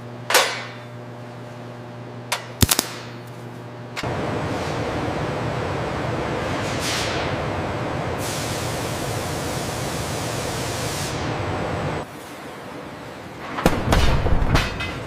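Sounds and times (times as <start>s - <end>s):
rushing hissing noise: 4.1s - 12.0s.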